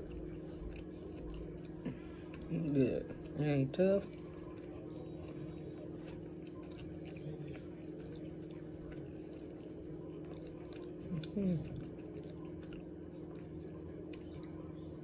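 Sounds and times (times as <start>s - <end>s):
chewing and mouth clicks: 0.0s - 15.0s
steady low hum: 0.0s - 15.0s.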